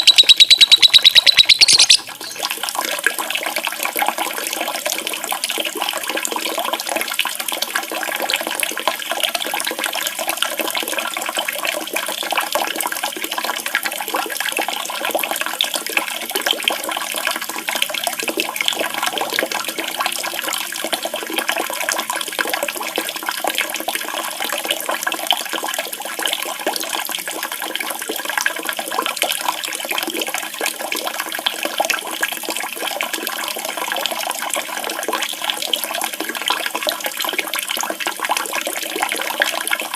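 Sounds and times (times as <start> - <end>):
running splashing water: 0.0 - 4.0.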